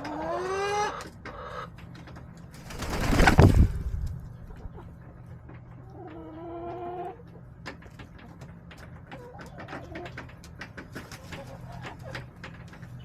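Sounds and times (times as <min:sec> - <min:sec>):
loud rushing noise: 0:02.6 - 0:04.1.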